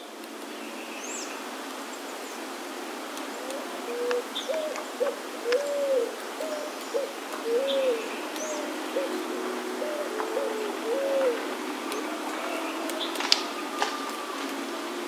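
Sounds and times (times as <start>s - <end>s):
bird hooting: 3.4s - 14.5s.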